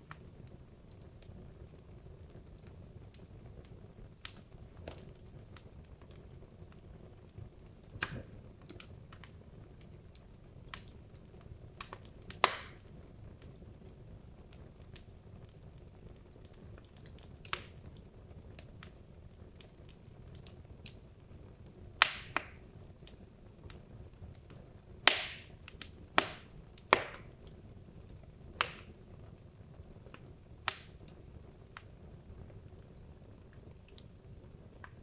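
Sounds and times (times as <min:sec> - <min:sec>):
wood logs crackling in fireplace: 0:00.0 - 0:35.0.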